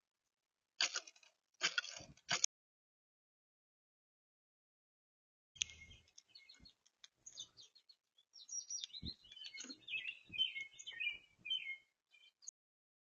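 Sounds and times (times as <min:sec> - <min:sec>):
small songbirds twittering: 0:05.6 - 0:12.5.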